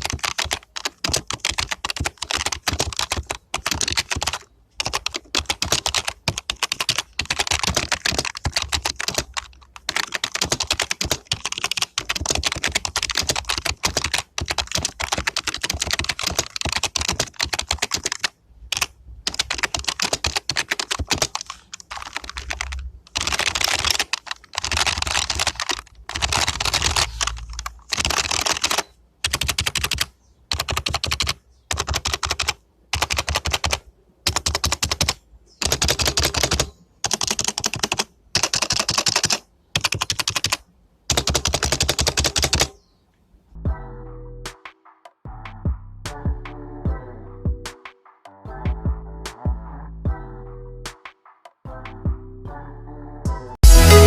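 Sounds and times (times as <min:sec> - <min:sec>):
typing on membrane keyboard: 0:00.0 - 0:42.7.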